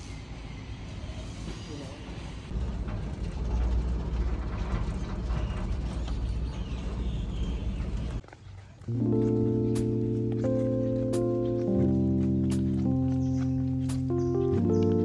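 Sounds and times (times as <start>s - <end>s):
clattering mechanical rumble: 2.2s - 8.2s.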